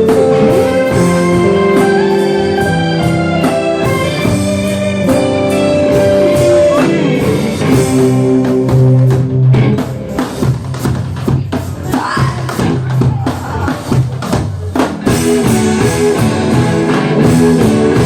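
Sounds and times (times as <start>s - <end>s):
guitar melody: 0.0s - 11.4s, 15.0s - 18.0s
drum kit beat: 0.0s - 18.0s.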